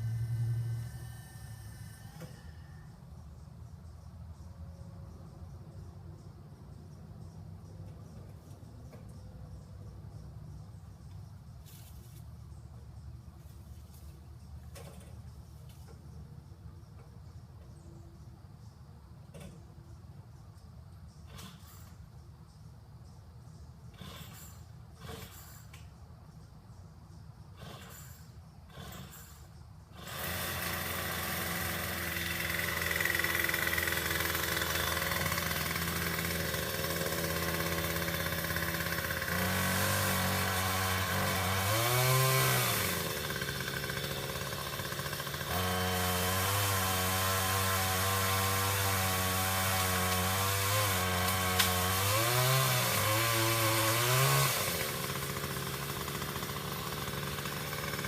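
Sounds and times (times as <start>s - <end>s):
small engine running: 0.0s - 2.9s, 23.9s - 25.8s, 27.5s - 58.0s.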